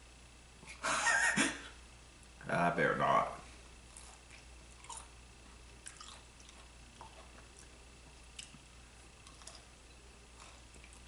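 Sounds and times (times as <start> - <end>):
biting and chewing pepper: 3.9 - 11.0.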